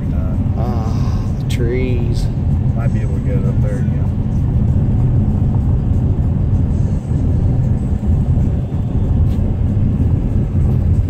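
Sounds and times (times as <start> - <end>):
vehicle engine and tyre noise: 0.0 - 11.0.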